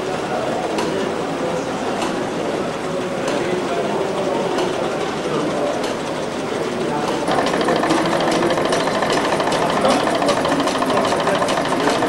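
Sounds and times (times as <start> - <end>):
small engine mechanical clatter: 4.5 - 12.0.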